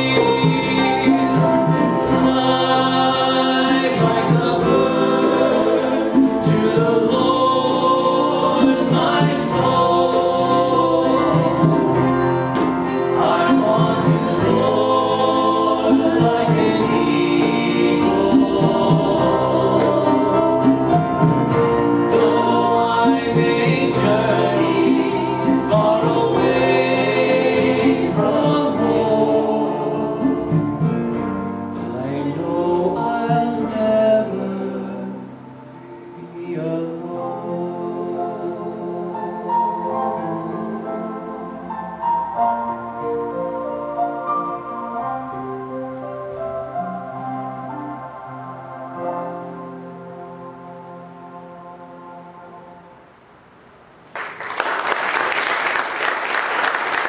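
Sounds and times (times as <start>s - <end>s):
person singing: 0.0s - 42.5s.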